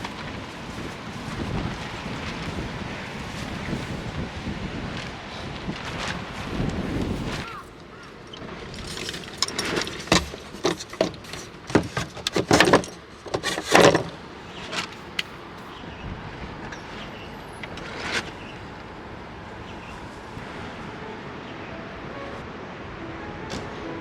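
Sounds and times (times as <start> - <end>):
steady background noise: 0.0 - 24.0
sharp knocks and rattles: 7.8 - 15.0.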